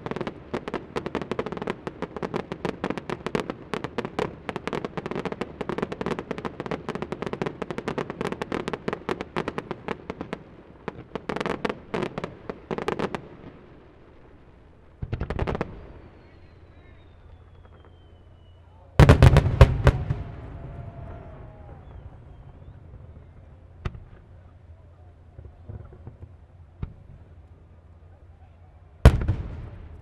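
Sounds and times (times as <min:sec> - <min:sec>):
fireworks bangs and crackles: 0:00.0 - 0:30.0
heavy firework boom: 0:19.0 - 0:24.3, 0:29.1 - 0:30.0.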